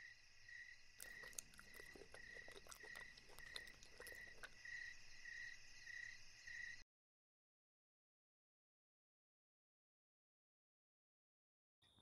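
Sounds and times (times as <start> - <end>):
cricket chirping: 0.0 - 6.8.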